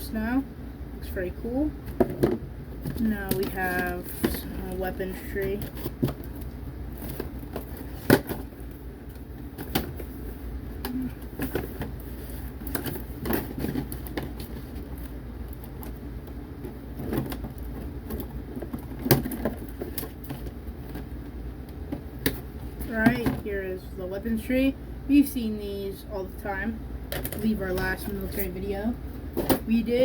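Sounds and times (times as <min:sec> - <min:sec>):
plastic toy packaging handled: 0:02.8 - 0:10.2, 0:11.2 - 0:21.2.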